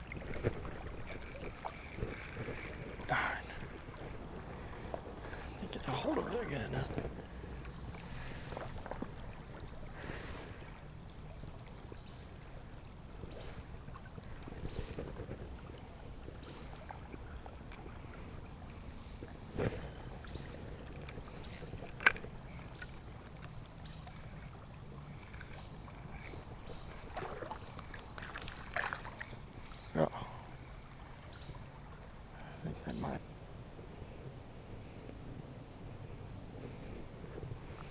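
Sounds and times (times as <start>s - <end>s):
water rushing: 0.0s - 10.6s, 24.1s - 33.2s
wind: 0.0s - 37.9s.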